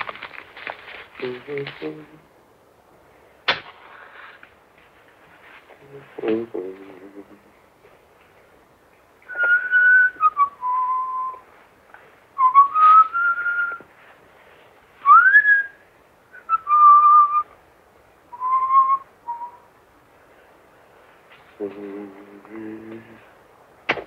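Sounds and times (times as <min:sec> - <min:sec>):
person whistling a slow tune: 0:09.3 - 0:11.5, 0:12.4 - 0:13.9, 0:15.0 - 0:17.5, 0:18.3 - 0:19.7.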